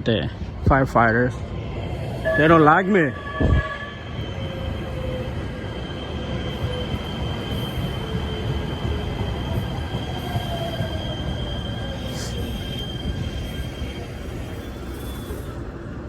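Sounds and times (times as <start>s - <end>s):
train rumbling on tracks: 0.0s - 16.0s
train wheels squealing: 2.0s - 16.0s.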